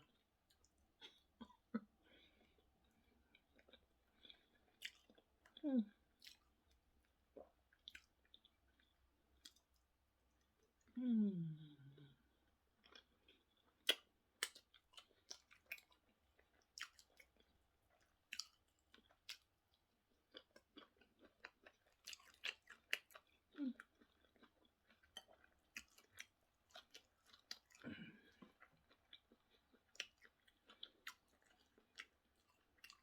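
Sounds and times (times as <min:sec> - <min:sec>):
person chewing wetly: 0:02.4 - 0:09.8, 0:12.8 - 0:33.0
person humming mm: 0:11.0 - 0:12.2.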